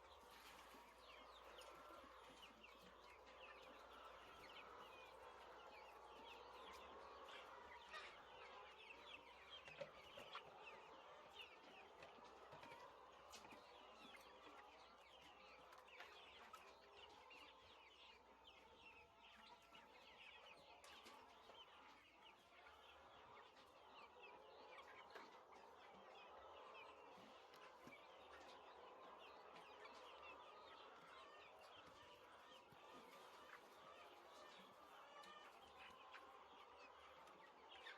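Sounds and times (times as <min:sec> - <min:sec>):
chickens chirping and clucking: 0:00.0 - 0:37.9.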